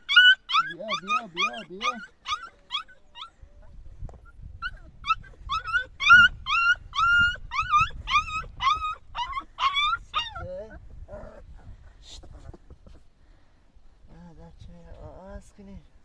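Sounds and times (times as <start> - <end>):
dog whimpering and yipping: 0.0 - 11.5.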